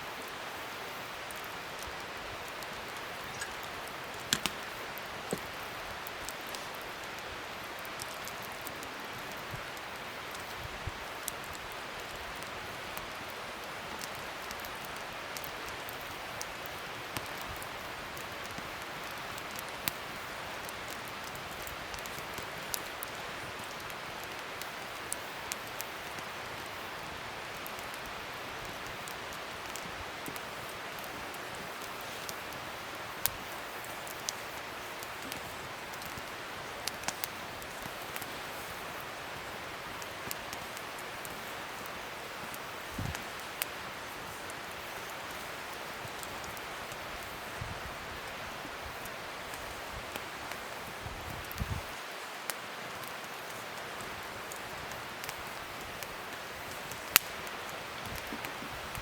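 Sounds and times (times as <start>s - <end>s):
wood fire hissing: 0.0s - 59.0s
fire crackles and pops: 0.1s - 59.0s.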